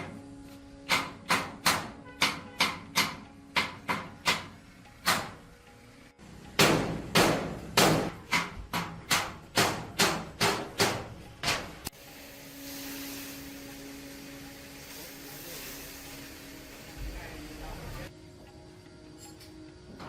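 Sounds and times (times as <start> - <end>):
hammer striking with ringing tail: 6.5 - 11.6.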